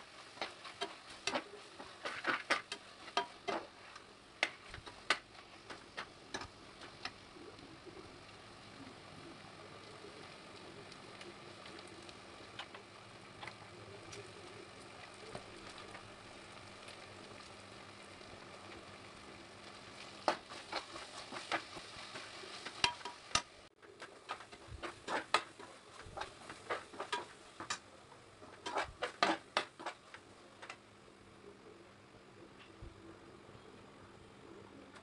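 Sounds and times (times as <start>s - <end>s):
masala sizzling in oil: 0.0s - 31.7s.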